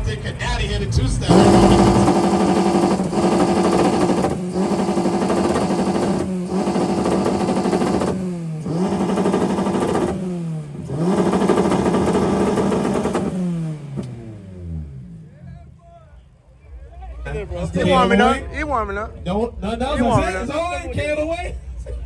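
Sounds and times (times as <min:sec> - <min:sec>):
car engine revving: 0:00.0 - 0:16.3.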